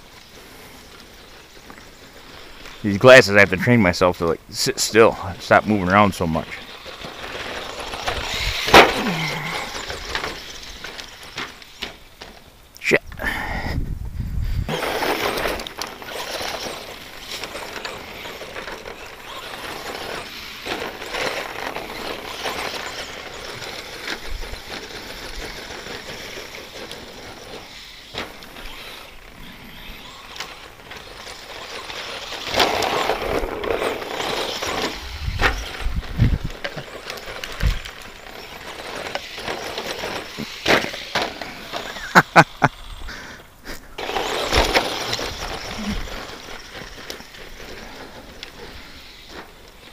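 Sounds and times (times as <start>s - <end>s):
tyres scrabbling over dirt: 0.0s - 13.0s, 14.6s - 49.9s
electric toy truck motor whining: 4.8s - 12.5s, 14.6s - 49.9s
sharp knocks from landings: 6.8s - 12.4s.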